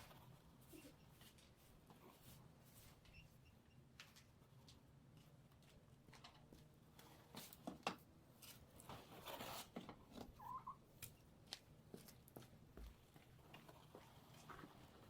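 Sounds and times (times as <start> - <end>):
chicken chirp: 10.4 - 10.8.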